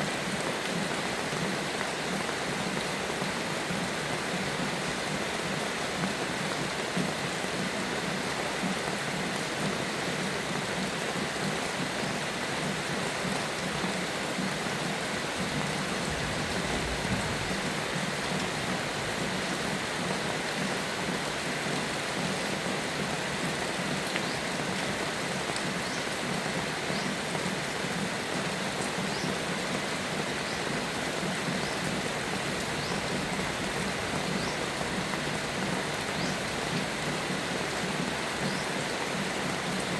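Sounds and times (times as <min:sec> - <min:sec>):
heavy rain falling: 0:00.0 - 0:39.9
thunder rumble: 0:15.6 - 0:18.7.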